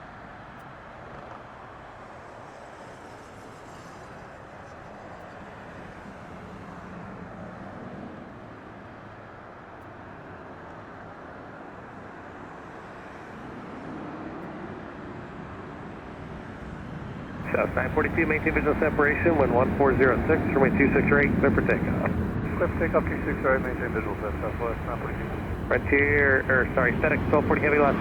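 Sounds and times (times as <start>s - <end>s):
distant jet engine rumble: 17.4s - 28.0s.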